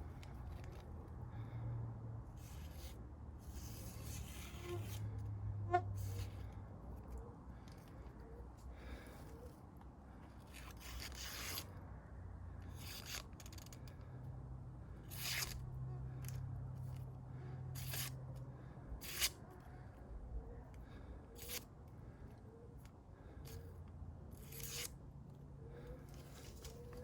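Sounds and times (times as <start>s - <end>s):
knife scraping wood: 2.4s - 5.0s, 5.7s - 6.5s, 10.4s - 11.7s, 15.1s - 15.6s, 17.8s - 18.2s, 19.0s - 19.4s, 21.4s - 21.7s, 24.3s - 25.0s.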